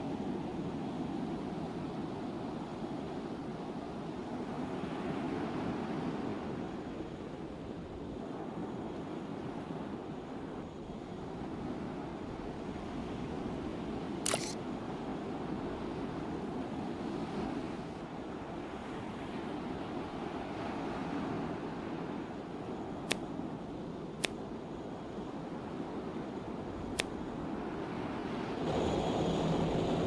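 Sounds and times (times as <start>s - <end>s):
sharp click: 14.2s - 14.6s, 23.1s - 23.3s, 26.9s - 27.2s.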